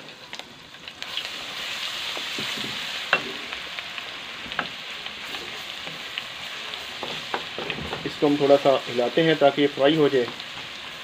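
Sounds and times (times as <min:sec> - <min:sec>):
garlic paste sizzling in oil: 0:00.0 - 0:11.0
wooden spatula knocking pan: 0:06.9 - 0:08.2.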